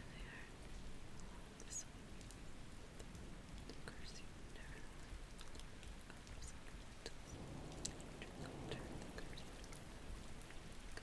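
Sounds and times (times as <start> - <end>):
light drip ticks: 0.0 - 11.0
steady rain falling: 0.0 - 11.0
low rumble: 7.3 - 10.8.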